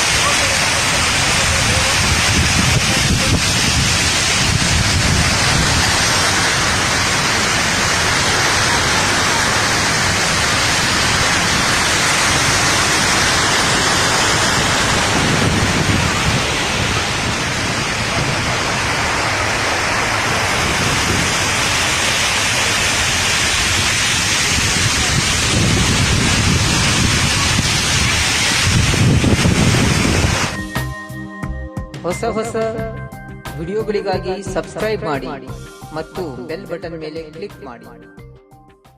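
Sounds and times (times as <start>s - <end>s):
waterfall roaring: 0.0s - 30.6s.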